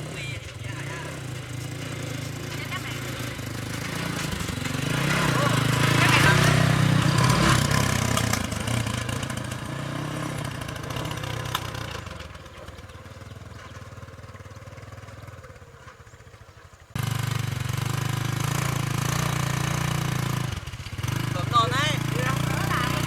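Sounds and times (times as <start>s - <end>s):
small diesel engine running: 0.0s - 23.0s.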